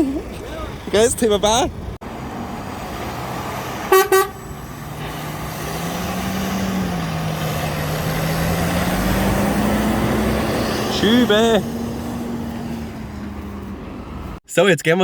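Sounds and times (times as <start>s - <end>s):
truck engine running: 0.0s - 14.4s
truck horn toots: 3.8s - 4.6s.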